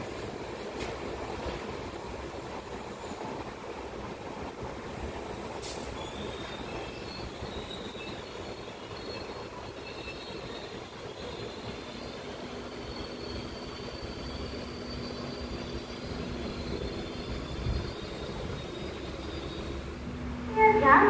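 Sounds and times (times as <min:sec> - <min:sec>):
train wheels rumbling: 0:00.0 - 0:21.0
wheel and brake squeal: 0:05.7 - 0:19.9.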